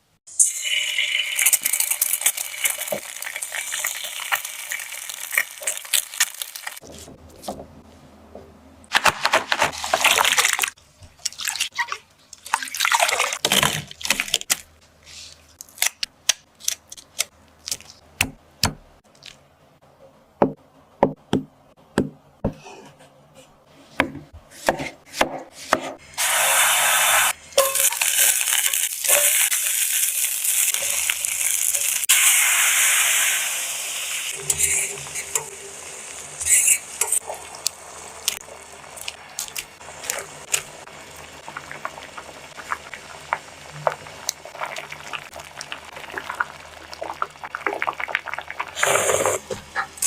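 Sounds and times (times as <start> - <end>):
food sizzling in a pan: 0.3 - 6.8, 26.2 - 39.0.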